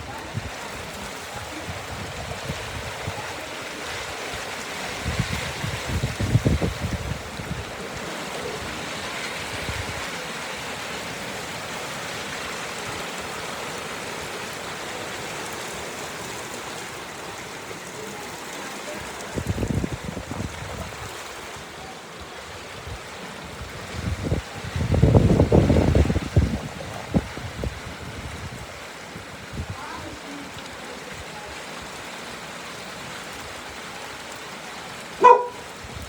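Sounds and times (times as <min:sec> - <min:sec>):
wind buffeting microphone: 0:00.0 - 0:10.2, 0:19.2 - 0:21.8, 0:22.8 - 0:30.2
steady rain falling: 0:00.0 - 0:36.0.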